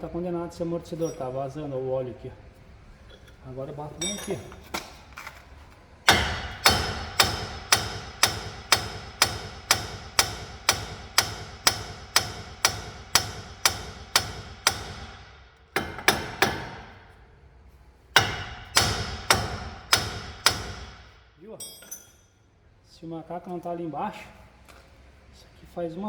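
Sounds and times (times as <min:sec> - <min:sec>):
sledgehammer striking steel: 0:06.1 - 0:17.1, 0:18.2 - 0:22.2.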